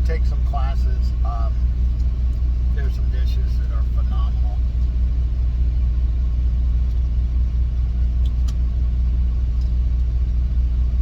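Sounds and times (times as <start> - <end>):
truck engine idling: 0.0 - 11.0
faint light ticks: 9.6 - 10.1.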